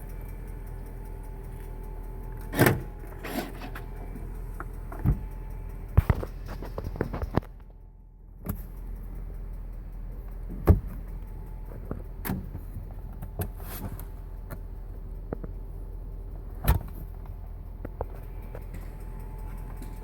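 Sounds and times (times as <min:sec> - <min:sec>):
engine running with ticking: 0:00.0 - 0:20.0
sharp engine knocks: 0:04.6 - 0:07.6, 0:10.5 - 0:11.1.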